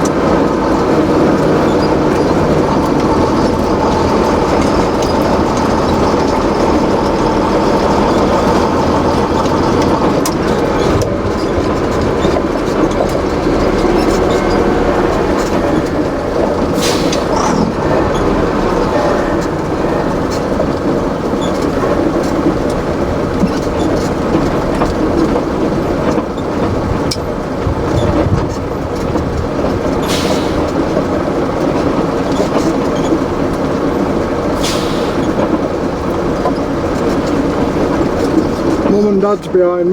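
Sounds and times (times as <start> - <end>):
heavy truck engines running: 0.0 - 39.9
air hissing: 13.6 - 20.4, 30.0 - 30.9, 34.6 - 35.5.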